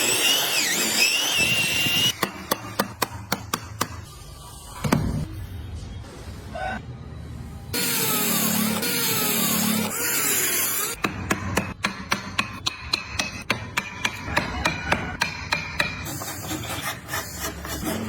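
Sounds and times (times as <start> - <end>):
rasping scrape on wood: 14.6 - 18.0.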